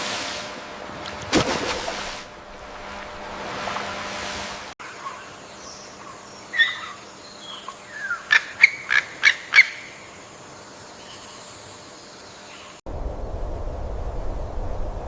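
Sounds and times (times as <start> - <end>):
bird calling: 4.8 - 10.1.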